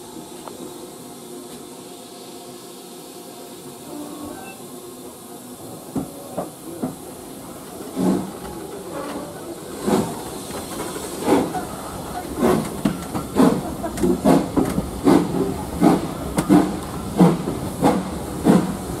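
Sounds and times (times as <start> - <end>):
steam hissing: 0.0 - 19.0
steam locomotive exhaust chuffs: 5.0 - 19.0.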